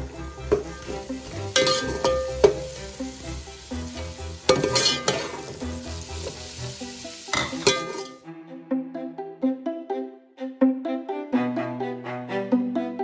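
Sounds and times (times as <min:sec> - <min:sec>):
vegetables and egg sizzling in a pot: 0:00.0 - 0:08.2
background music with a beat: 0:00.0 - 0:13.0
metal spoon scraping a pot: 0:04.5 - 0:05.4.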